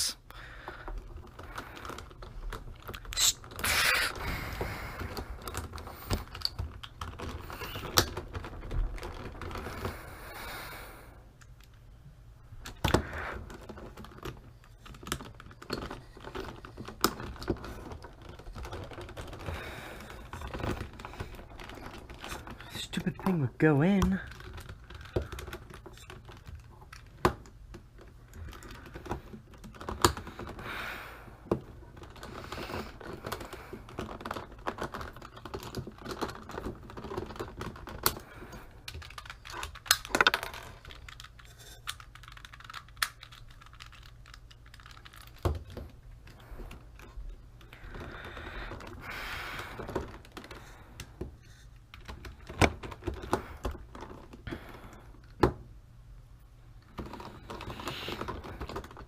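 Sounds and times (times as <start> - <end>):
puzzle cube pieces clicking: 32.0 - 45.8.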